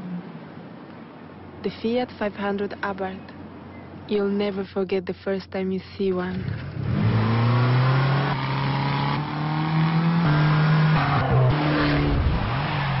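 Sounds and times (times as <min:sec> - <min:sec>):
car engine revving: 0:06.4 - 0:13.0.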